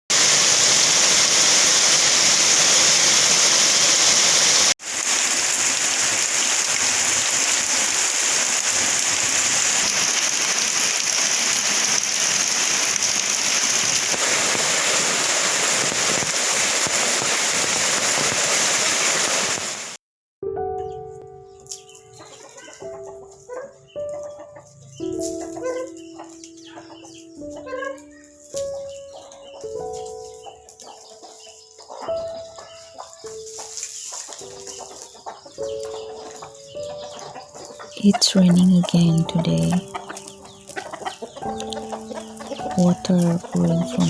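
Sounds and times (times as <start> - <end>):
heavy rain falling: 0.1 - 20.0.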